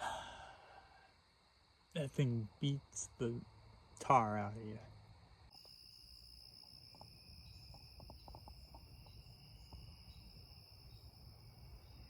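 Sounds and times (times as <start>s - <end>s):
high-pitched insect chorus: 0.0s - 12.0s
faint small ticks: 6.6s - 10.2s.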